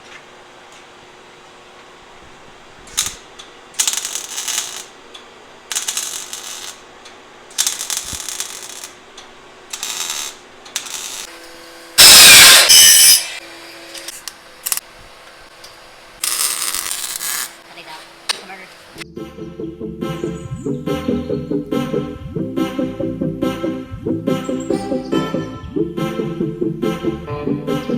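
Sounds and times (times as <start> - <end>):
harsh mechanical noise: 2.2 - 19.0.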